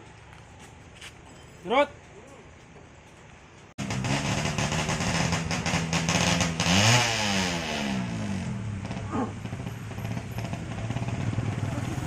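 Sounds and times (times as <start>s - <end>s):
motorcycle engine idling and revving: 3.4s - 12.0s.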